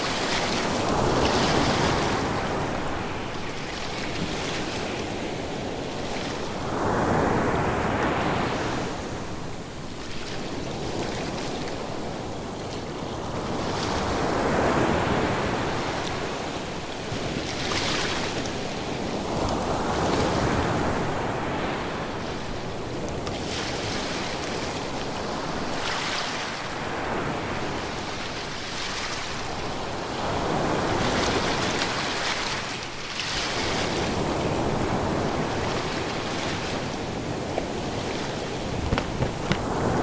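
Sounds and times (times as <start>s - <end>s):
waves breaking on shore: 35.7s - 40.0s.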